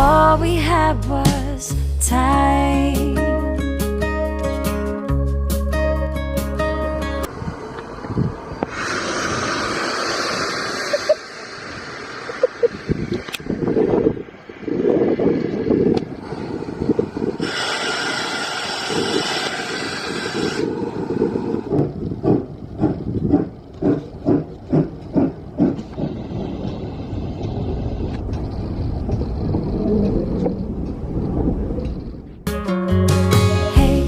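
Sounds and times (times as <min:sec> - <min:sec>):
locomotive exhaust chuffs: 0:07.2 - 0:32.4
steam locomotive hiss: 0:08.6 - 0:13.0, 0:16.2 - 0:21.8
low rumble: 0:20.7 - 0:32.4.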